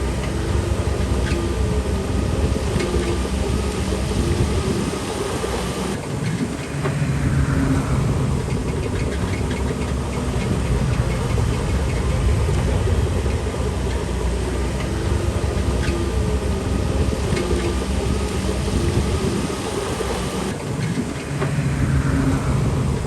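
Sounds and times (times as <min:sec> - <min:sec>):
bulldozer diesel engine rumble: 0:00.0 - 0:06.0, 0:07.0 - 0:20.5.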